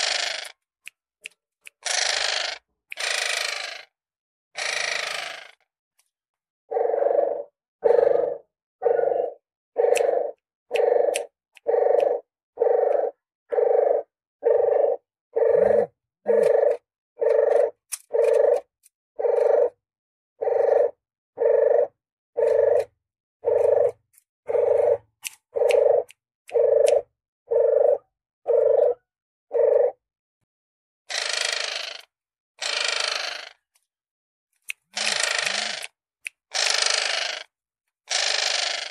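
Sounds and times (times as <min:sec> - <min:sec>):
dove cooing: 0:06.7 - 0:19.8, 0:20.4 - 0:30.0.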